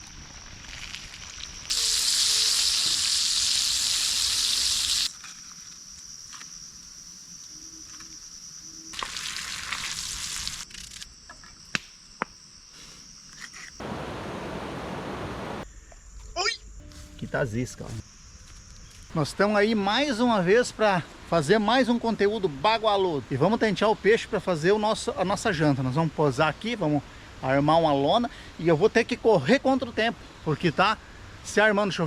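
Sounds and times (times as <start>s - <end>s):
sharp crackles: 0.0s - 6.5s
high insect tone: 0.0s - 14.4s, 15.6s - 20.4s
fish sizzling in oil: 0.4s - 5.2s, 8.9s - 10.7s
low rushing noise: 13.8s - 15.6s.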